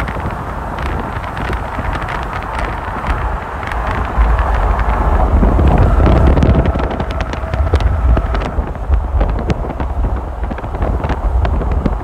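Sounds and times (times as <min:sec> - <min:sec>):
small clicks and rattles: 0:00.0 - 0:08.5
vehicle rumble: 0:00.0 - 0:12.0
wind buffeting microphone: 0:00.0 - 0:12.0.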